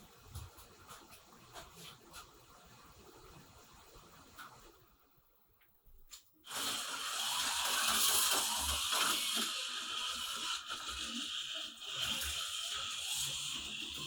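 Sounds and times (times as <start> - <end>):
slot car motor whirring: 6.5 - 14.0.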